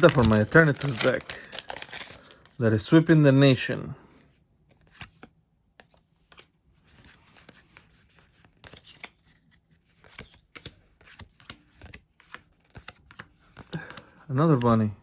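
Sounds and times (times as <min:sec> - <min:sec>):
trading cards being flipped: 0:00.0 - 0:03.2, 0:04.7 - 0:14.9.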